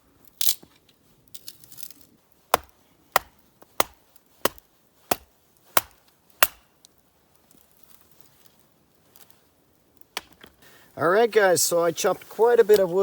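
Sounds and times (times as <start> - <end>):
axe chopping firewood: 2.5 - 6.8, 10.2 - 10.5, 12.7 - 13.0.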